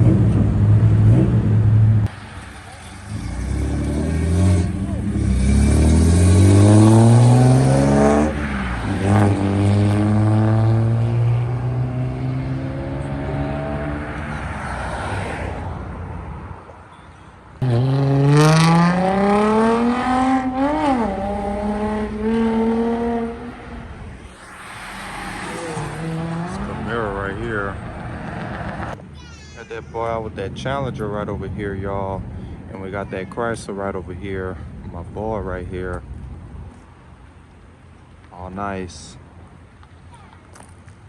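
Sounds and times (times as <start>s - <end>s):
vehicle engine accelerating: 0.0s - 15.7s, 17.6s - 29.0s
second engine revving: 3.0s - 14.4s, 17.6s - 29.0s.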